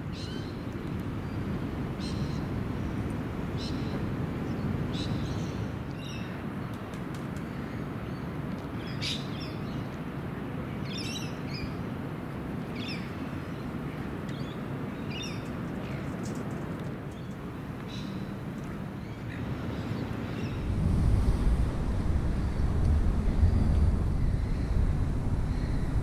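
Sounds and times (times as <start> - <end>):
low background rumble: 19.0 - 26.0.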